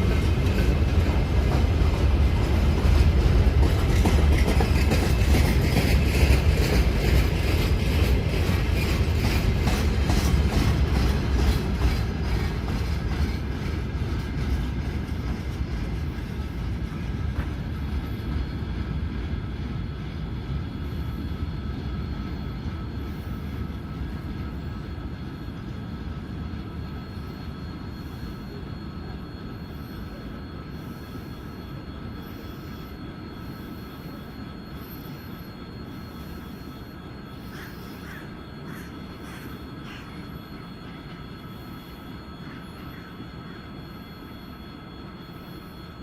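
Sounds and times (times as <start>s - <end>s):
train wheels clacking over joints: 0.0s - 18.4s
train rumble: 0.0s - 46.0s.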